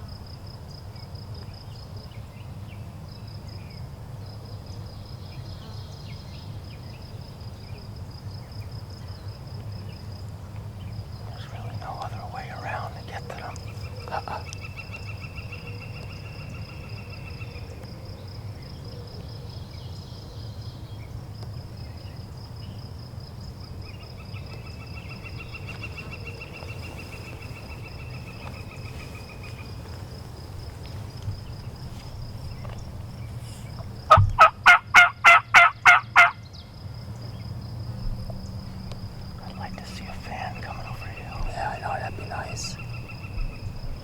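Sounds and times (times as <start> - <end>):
wild turkey yelps: 34.4 - 36.4.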